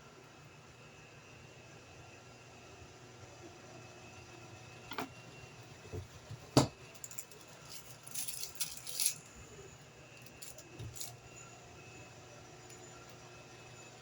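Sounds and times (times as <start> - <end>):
light clicking and rattling: 6.9 - 9.2.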